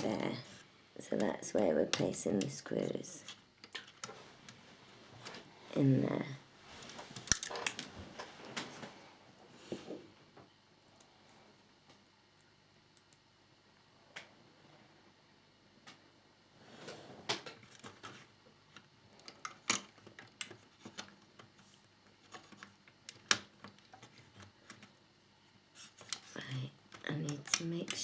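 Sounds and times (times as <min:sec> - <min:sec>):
plastic parts clicking: 0:26.0 - 0:28.0.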